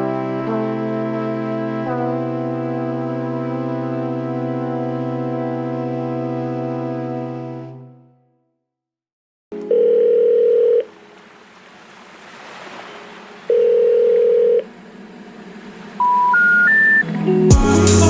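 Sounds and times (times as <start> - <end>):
telephone ringback beeps: 9.6 - 10.9, 13.5 - 14.6, 16.0 - 17.1
rising short telephone beeps: 13.5 - 14.6, 16.0 - 17.1.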